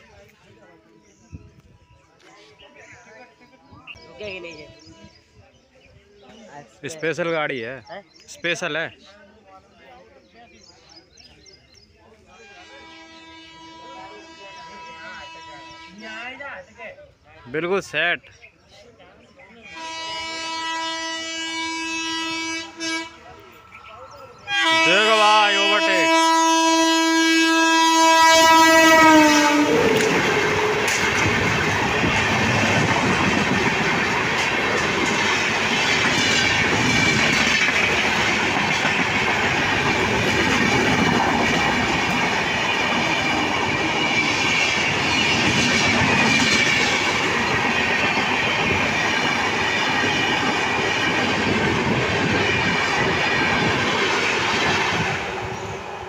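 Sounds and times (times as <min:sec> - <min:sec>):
locomotive horn: 0:12.3 - 0:16.3, 0:19.7 - 0:23.6, 0:24.4 - 0:32.9
train wheels clattering on rails: 0:29.8 - 0:55.6.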